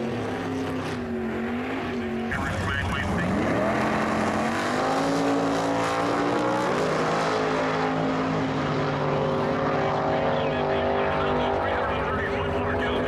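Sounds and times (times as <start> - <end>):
racing car engine revving high: 0.0 - 13.0.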